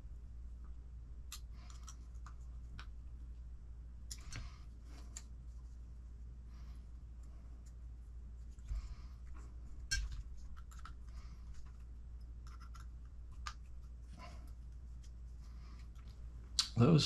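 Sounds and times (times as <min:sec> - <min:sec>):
small plastic parts clicking: 0:01.3 - 0:03.0, 0:09.8 - 0:11.8, 0:12.4 - 0:13.7.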